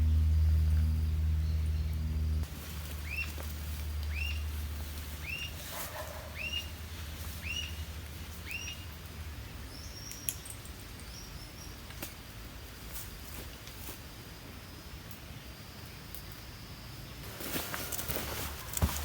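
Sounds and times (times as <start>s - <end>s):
low steady hum: 0.0s - 19.0s
bird calling: 2.8s - 4.5s, 5.2s - 9.0s.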